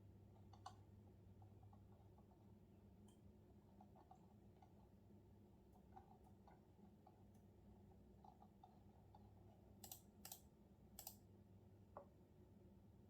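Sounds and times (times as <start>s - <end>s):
computer keyboard typing: 9.8s - 10.4s.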